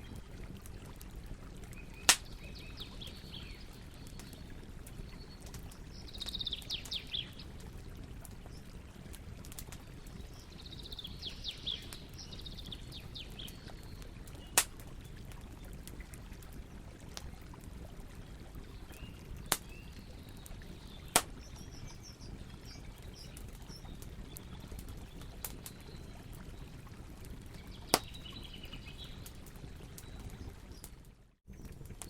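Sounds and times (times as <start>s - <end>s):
campfire crackling: 0.0s - 32.0s
birds chirping: 1.7s - 7.6s, 10.2s - 14.6s.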